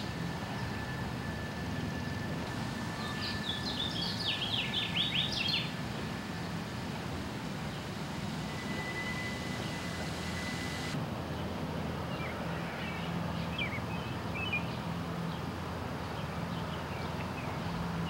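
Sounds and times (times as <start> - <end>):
steady low hum: 0.0 - 11.7
small birds chirping: 2.0 - 11.0.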